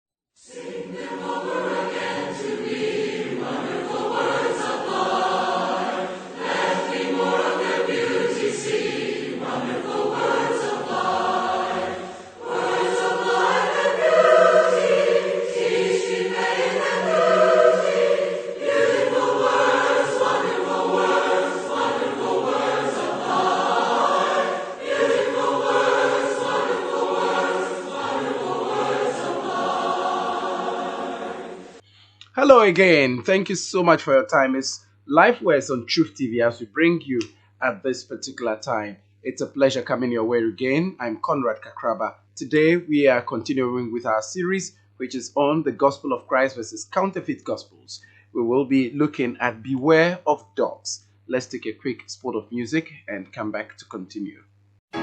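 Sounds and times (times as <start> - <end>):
choir singing: 0.4 - 31.8.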